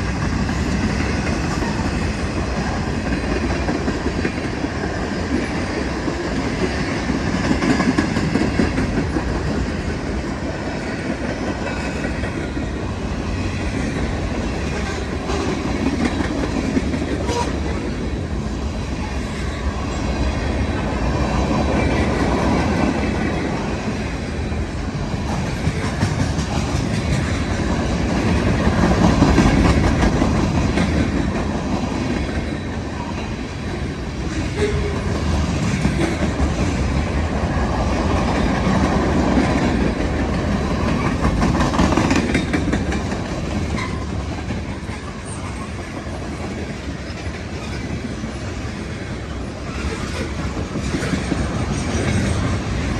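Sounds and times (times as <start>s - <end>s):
freight train cars rolling: 0.0s - 52.9s.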